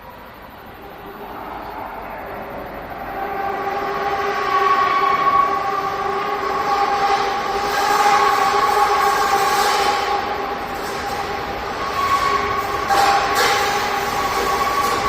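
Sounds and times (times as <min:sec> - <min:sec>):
metro train whine and rumble: 0:00.0 - 0:15.0.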